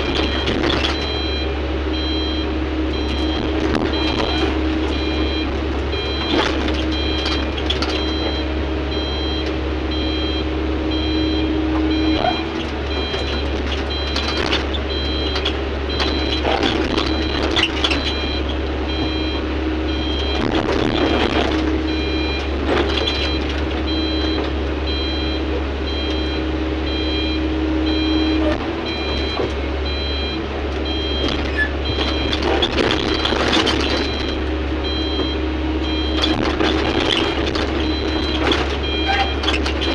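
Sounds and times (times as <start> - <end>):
clanking and scraping: 0.0 - 1.4, 2.9 - 8.4, 11.7 - 19.4, 20.0 - 24.7, 30.7 - 39.9
diesel engine running: 0.0 - 39.9
reversing alarm beeping: 0.0 - 39.9.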